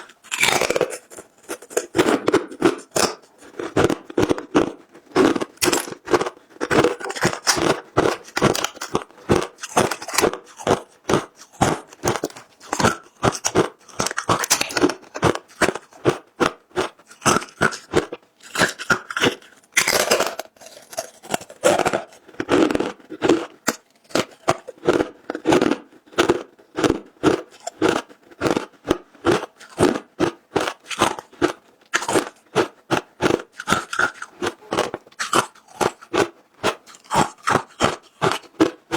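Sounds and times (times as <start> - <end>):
crunching ice between teeth: 0.0 - 38.9.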